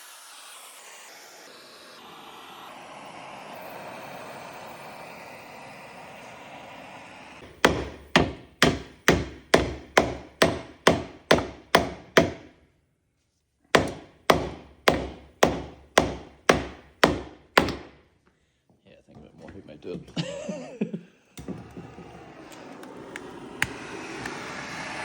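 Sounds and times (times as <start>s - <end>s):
hammer striking metal: 7.4s - 12.6s, 13.8s - 18.0s.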